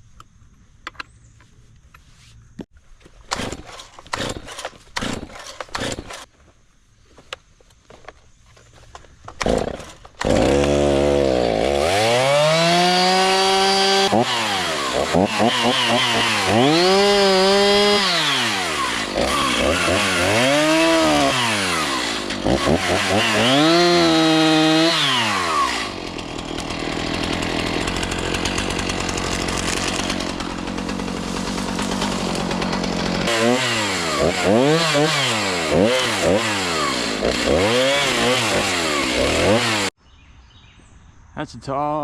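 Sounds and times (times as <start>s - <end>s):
chainsaw cutting wood: 3.2s - 6.3s, 9.3s - 40.0s
chainsaw revving: 3.3s - 6.3s, 9.4s - 40.0s.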